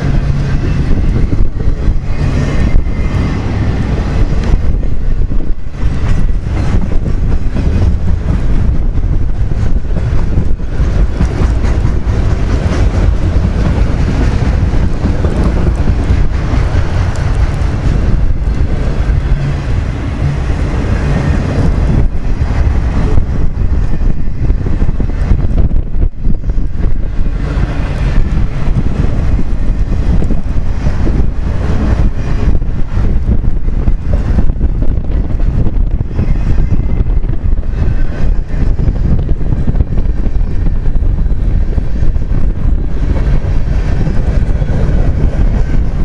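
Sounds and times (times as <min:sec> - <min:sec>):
freight train passing: 0:00.0 - 0:46.0
wind buffeting microphone: 0:00.0 - 0:46.0.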